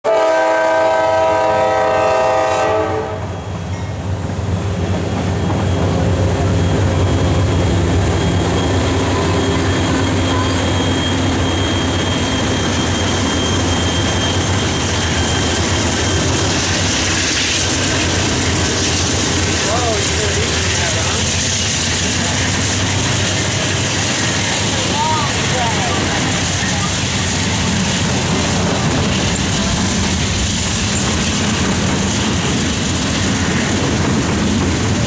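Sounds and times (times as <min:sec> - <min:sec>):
train horn chord: 0:00.1 - 0:03.4
diesel locomotives running: 0:00.1 - 0:35.0.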